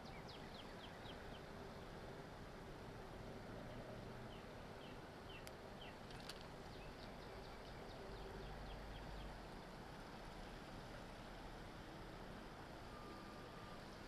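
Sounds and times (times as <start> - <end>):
bird chirping: 0.0 - 1.5.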